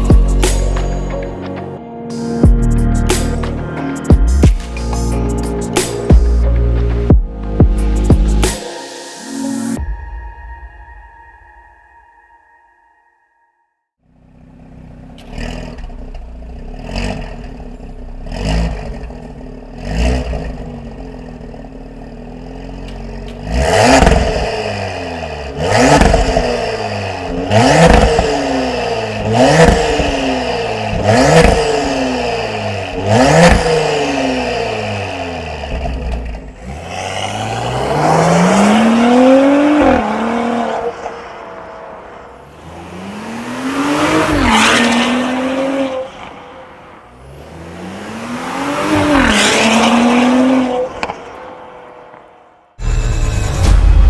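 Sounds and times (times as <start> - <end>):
engine throttle blips: 14.1 - 53.8
car accelerating: 14.1 - 54.0
loud sharp engine revs: 14.3 - 53.8.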